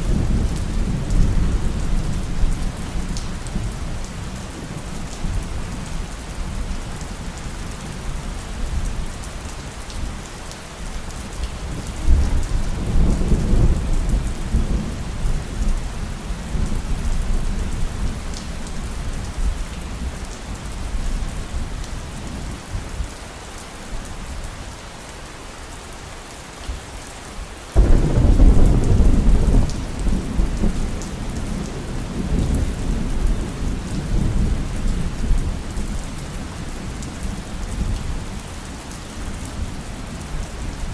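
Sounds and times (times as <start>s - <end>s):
heavy rain falling: 0.0s - 40.9s
thunderclap: 27.8s - 33.2s
low roll of thunder: 27.8s - 35.8s.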